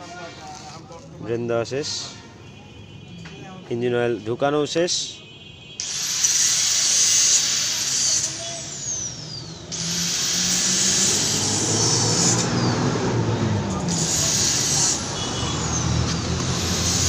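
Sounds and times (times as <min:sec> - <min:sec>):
loud hiss: 0:05.8 - 0:13.2, 0:13.8 - 0:17.0.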